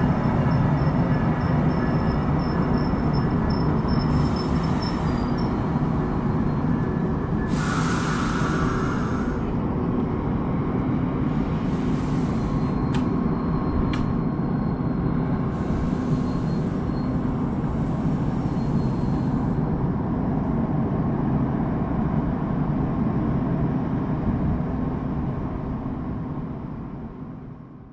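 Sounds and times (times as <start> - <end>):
train equipment rumbling: 0.0 - 21.4.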